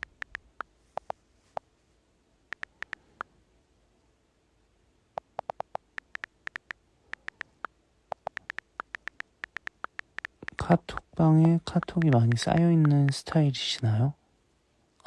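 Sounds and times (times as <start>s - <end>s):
keyboard key clicks: 5.2s - 13.3s.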